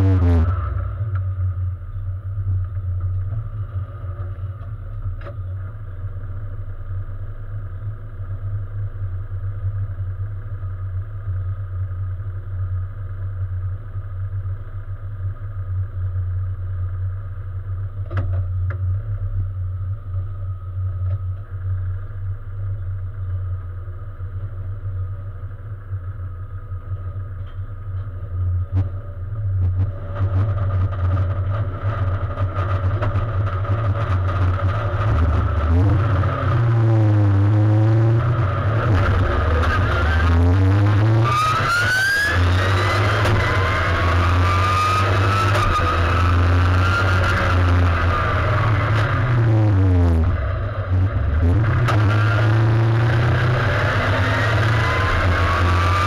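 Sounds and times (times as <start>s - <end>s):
race car engine idling: 0.8s - 36.6s.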